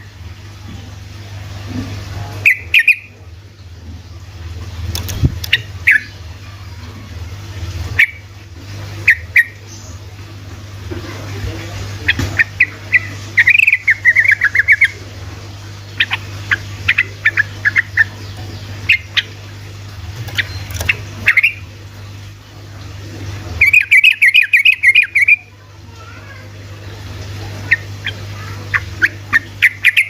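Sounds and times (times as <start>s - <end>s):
steady low hum: 0.0s - 30.0s
bird chirps: 2.4s - 3.1s, 20.3s - 21.6s, 23.6s - 25.5s, 27.7s - 30.0s
bird singing bubbling notes: 2.4s - 10.4s, 11.8s - 25.6s, 26.6s - 30.0s.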